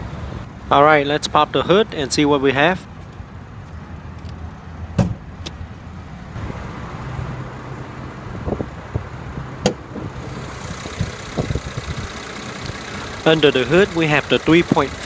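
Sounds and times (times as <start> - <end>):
car engine idling: 9.9 - 15.0.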